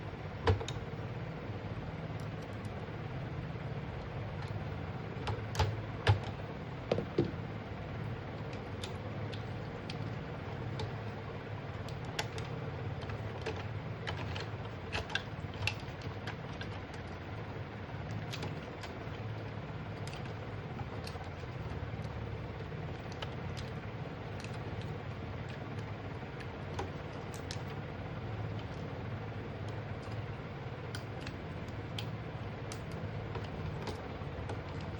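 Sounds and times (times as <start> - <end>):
steady low hum: 0.0 - 34.9
light clicks and taps: 19.9 - 34.9.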